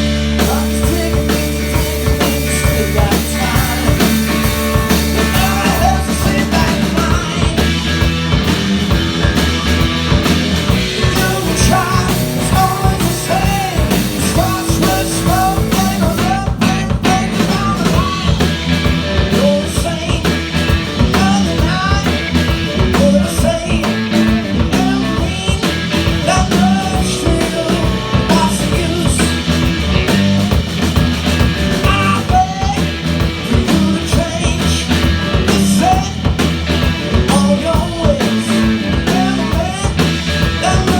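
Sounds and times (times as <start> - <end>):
blues-rock band playing live: 0.0 - 40.9
electric guitar: 0.0 - 40.9
steady drum beat: 0.0 - 40.9
person singing: 0.1 - 8.0, 10.7 - 18.6, 19.2 - 29.5, 31.8 - 36.4, 37.1 - 40.9.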